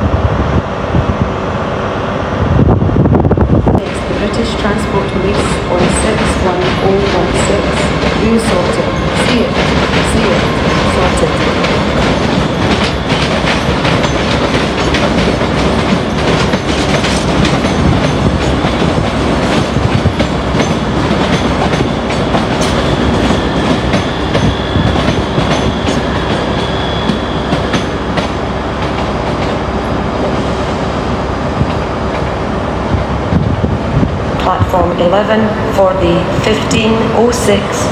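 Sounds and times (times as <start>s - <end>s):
train wheels clicking over rail joints: 3.8s - 29.6s.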